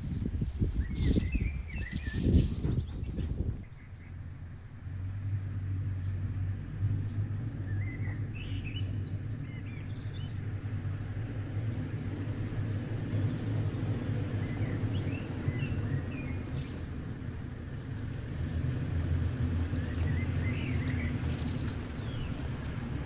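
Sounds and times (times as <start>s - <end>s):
small birds chirping: 0.0s - 4.8s, 6.0s - 23.0s
low engine rumble: 0.0s - 23.0s.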